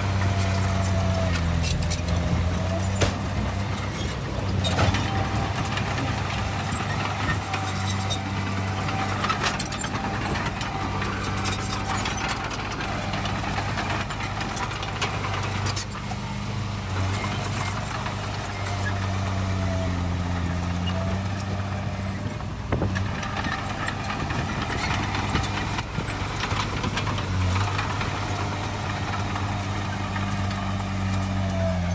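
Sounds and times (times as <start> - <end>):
diesel machinery engine drone: 0.0 - 31.9
short metallic knocks: 0.5 - 13.9.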